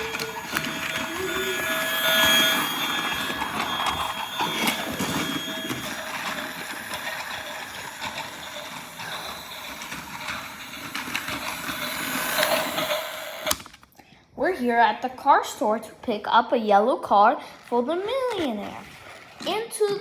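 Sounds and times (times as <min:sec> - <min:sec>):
thin steady whine: 0:00.0 - 0:13.5
clicks of train on track: 0:00.0 - 0:13.7
toy train motor whir: 0:00.0 - 0:13.7, 0:17.4 - 0:20.0.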